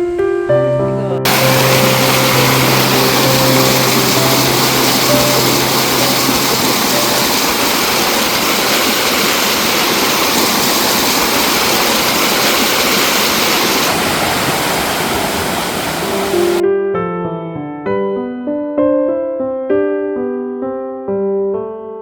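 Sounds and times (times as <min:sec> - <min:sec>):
stream rushing over rocks: 0:01.2 - 0:16.6.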